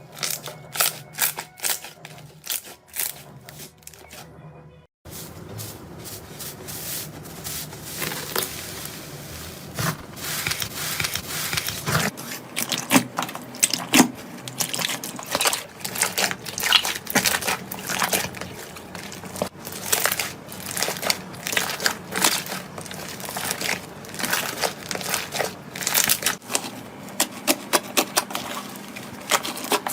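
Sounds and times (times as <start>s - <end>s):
slime squeezed crackling and popping: 12.6s - 26.4s.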